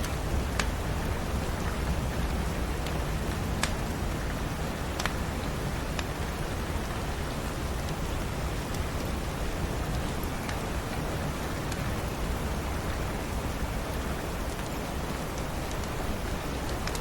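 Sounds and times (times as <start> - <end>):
log fire crackling pops: 0.0 - 4.2.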